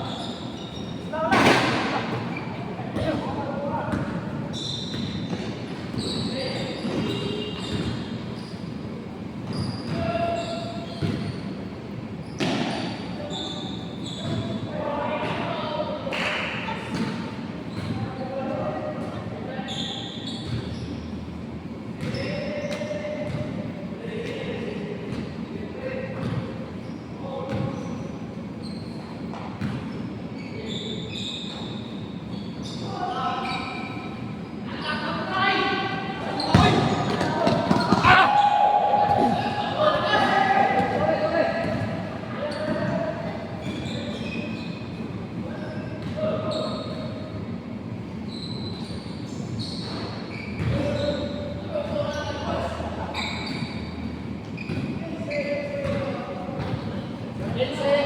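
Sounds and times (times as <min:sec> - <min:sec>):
shoe squeaks on court: 0:00.0 - 0:03.2, 0:03.9 - 0:11.6, 0:12.2 - 0:14.6, 0:19.6 - 0:21.3, 0:22.0 - 0:23.4, 0:26.2 - 0:35.1, 0:36.2 - 0:38.2, 0:43.6 - 0:47.2, 0:48.2 - 0:57.0
players' voices: 0:00.0 - 0:11.4, 0:32.6 - 0:47.7, 0:50.6 - 0:58.0
short high squeaks: 0:04.5 - 0:05.3, 0:05.9 - 0:08.7, 0:12.2 - 0:14.6, 0:43.6 - 0:45.0, 0:48.3 - 0:51.5, 0:53.1 - 0:55.6
basketball bouncing on court: 0:26.2 - 0:26.5, 0:29.3 - 0:29.9, 0:36.4 - 0:38.3, 0:49.8 - 0:51.1, 0:55.8 - 0:57.6
players calling out: 0:34.8 - 0:43.0
basketball bouncing: 0:36.5 - 0:38.2.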